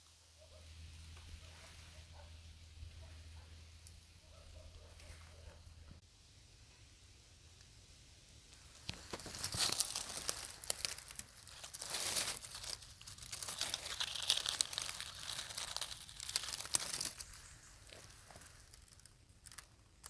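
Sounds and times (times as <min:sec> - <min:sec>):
dry leaves crunching: 0:08.6 - 0:20.0.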